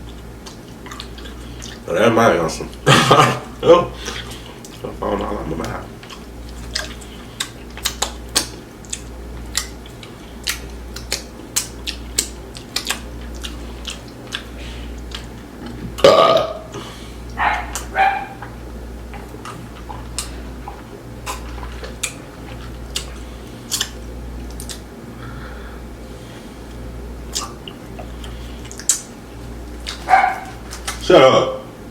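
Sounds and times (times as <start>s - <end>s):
wet chewing: 0.0s - 1.8s, 3.9s - 24.9s, 26.7s - 31.1s
lip smacks: 0.1s - 1.8s, 5.6s - 15.8s, 16.8s - 24.9s, 27.3s - 31.1s
crunching fried food: 3.9s - 15.8s, 16.8s - 24.9s, 26.8s - 31.1s
throaty sounds: 10.1s - 26.2s
loud burp: 16.0s - 16.8s.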